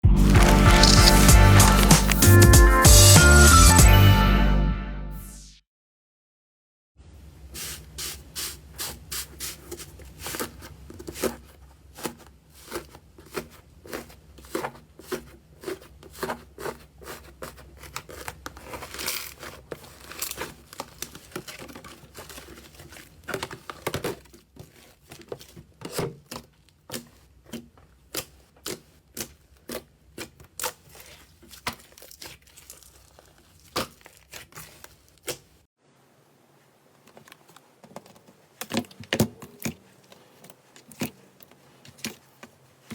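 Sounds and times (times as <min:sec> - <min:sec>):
slime crackling and popping: 0:00.2 - 0:02.4.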